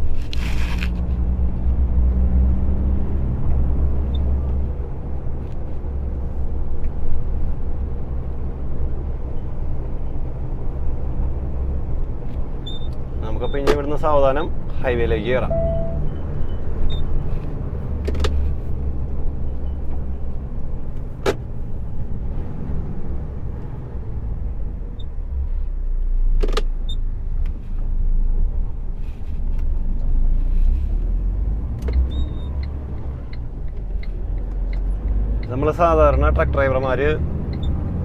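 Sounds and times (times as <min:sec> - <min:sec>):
truck engine and road noise: 0:00.0 - 0:38.0
sharp clicks or knocks: 0:18.0 - 0:18.4, 0:21.2 - 0:21.4.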